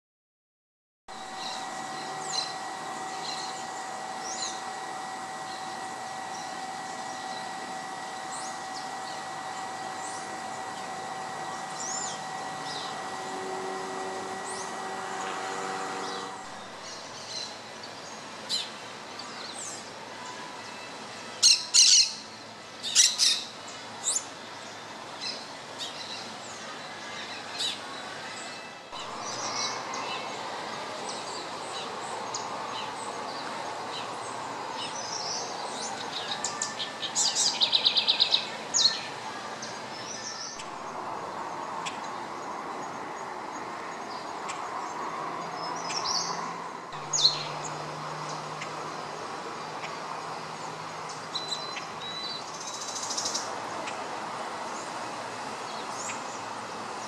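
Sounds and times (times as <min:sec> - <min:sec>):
birds chirping: 0:01.1 - 0:57.0
faint steady hum: 0:01.1 - 0:57.0
bird trill: 0:01.3 - 0:17.6, 0:21.4 - 0:24.3, 0:51.3 - 0:53.5.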